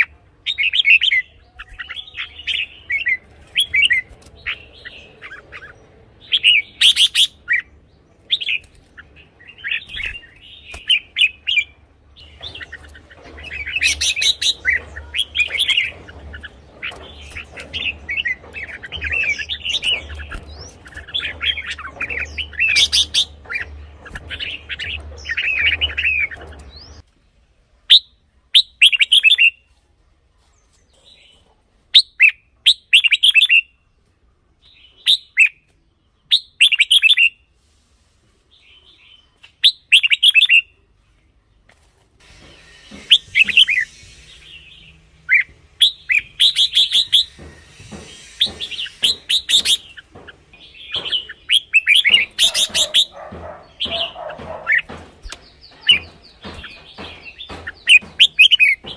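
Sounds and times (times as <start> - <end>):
bird chirping: 0.0 - 29.6, 42.2 - 58.9.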